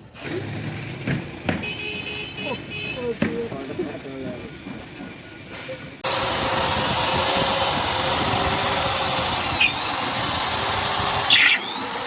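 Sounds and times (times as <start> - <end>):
electric power tool whining: 6.0 - 12.0.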